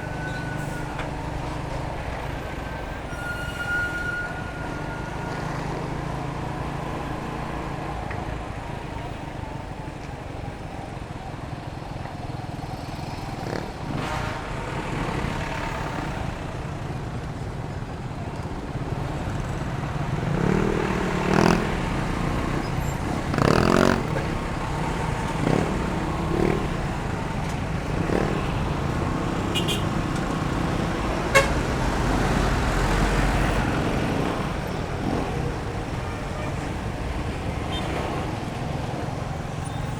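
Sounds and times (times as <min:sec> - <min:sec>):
motorcycle engine and road noise: 0:00.0 - 0:39.9
horn toots: 0:20.3 - 0:32.4.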